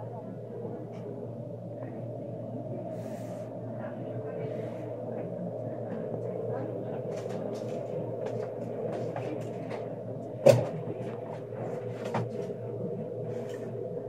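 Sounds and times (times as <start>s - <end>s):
train interior hum: 0.0s - 14.0s.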